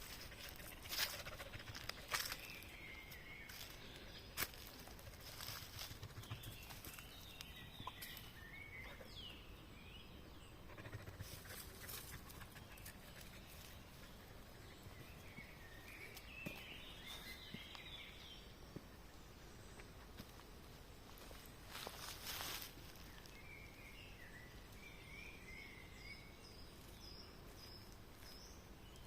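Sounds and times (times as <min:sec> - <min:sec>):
faint bird chirps: 0:00.0 - 0:20.2.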